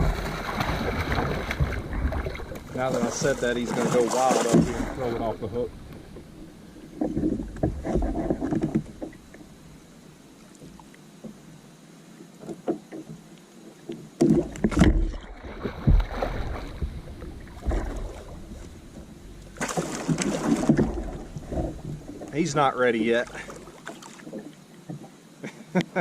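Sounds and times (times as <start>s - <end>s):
knocks and thumps on a kayak: 0.0s - 9.5s, 14.1s - 22.6s.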